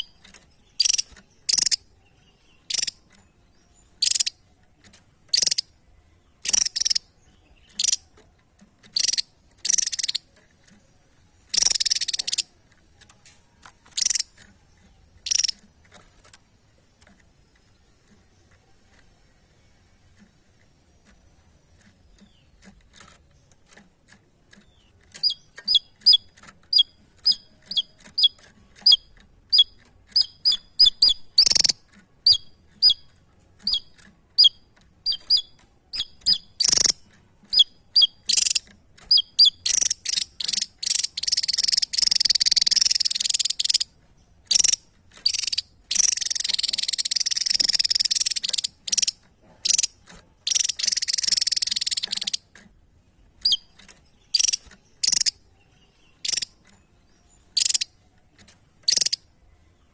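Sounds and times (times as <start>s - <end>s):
songbird chirping and singing: 0.0s - 59.9s.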